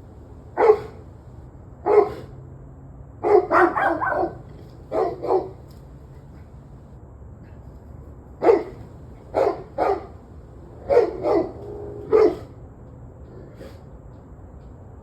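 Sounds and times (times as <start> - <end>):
low background hum: 0.0 - 15.0
dog barking: 0.6 - 1.1, 1.8 - 2.3, 3.2 - 5.7, 8.4 - 10.2, 10.8 - 12.5.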